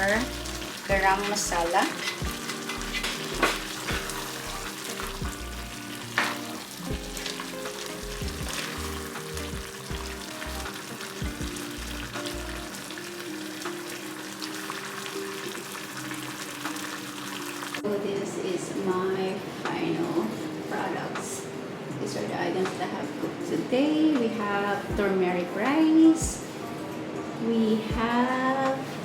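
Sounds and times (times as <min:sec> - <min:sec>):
curry sizzling in a pan: 0:00.0 - 0:18.0
soft background music: 0:00.0 - 0:29.0.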